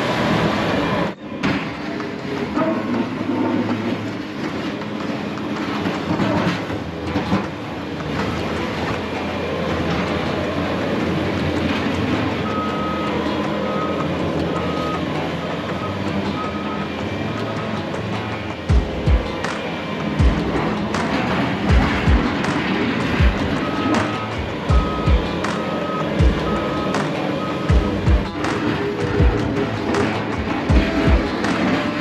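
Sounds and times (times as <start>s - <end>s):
plow scraping: 0.0s - 32.0s
truck engine rumble: 0.0s - 32.0s
short high beeps: 23.4s - 28.7s.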